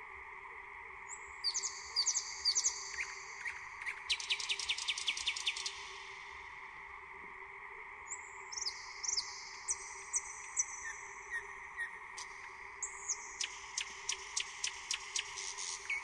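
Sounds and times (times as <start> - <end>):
faint steady hum: 0.0 - 16.0
small birds chirping: 1.1 - 5.9, 8.1 - 16.0.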